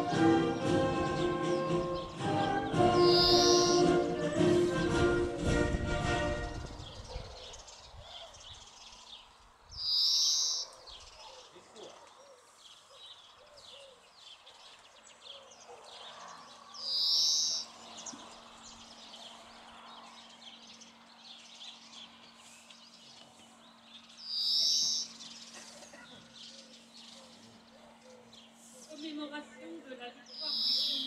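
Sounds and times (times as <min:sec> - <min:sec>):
loud bird call: 0:00.0 - 0:05.3, 0:09.8 - 0:11.6, 0:16.8 - 0:19.4, 0:23.7 - 0:28.8, 0:30.3 - 0:31.0
songbirds singing: 0:00.0 - 0:31.0.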